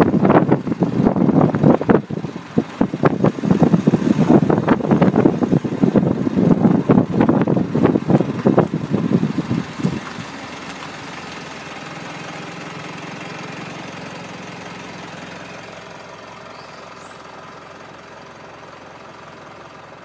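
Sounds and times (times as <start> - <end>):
wind buffeting microphone: 0.0 - 11.5
car engine running at low speed: 0.0 - 20.0.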